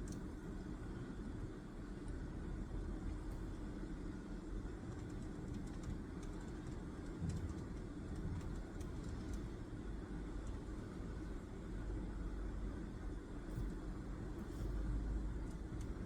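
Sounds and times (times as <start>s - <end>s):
low room rumble: 0.0s - 16.0s.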